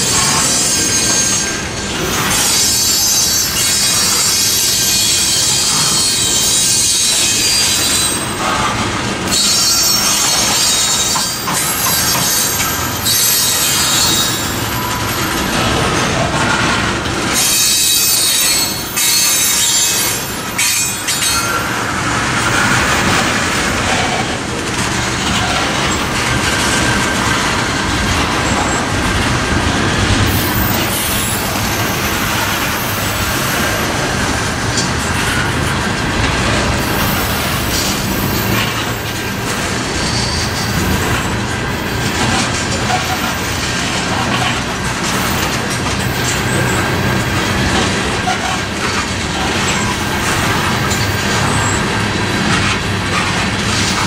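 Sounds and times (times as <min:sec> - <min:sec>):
high-pitched wheel squeal: 0:00.0 - 0:08.4, 0:09.3 - 0:15.4, 0:17.4 - 0:21.9, 0:40.0 - 0:41.2
rumble of steel wheels on rail: 0:00.0 - 0:54.0.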